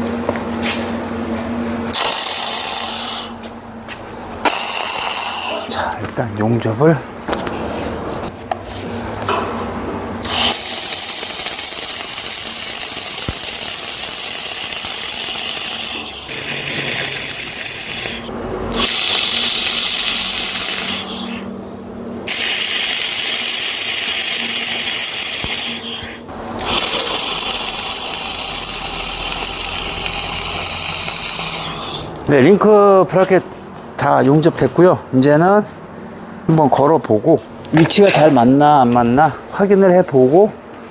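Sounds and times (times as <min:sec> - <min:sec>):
arc welding crackling hiss: 0:01.9 - 0:03.4, 0:04.4 - 0:05.8, 0:10.2 - 0:21.5, 0:22.3 - 0:32.1.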